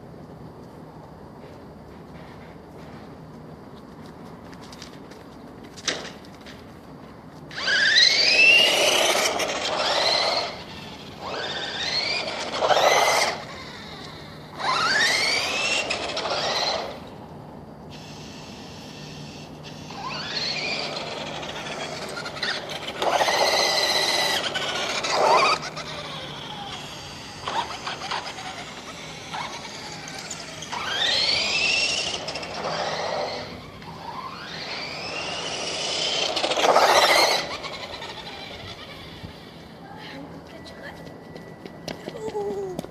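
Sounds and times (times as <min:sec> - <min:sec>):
rc car motor whining: 0:07.5 - 0:17.2, 0:17.9 - 0:39.8.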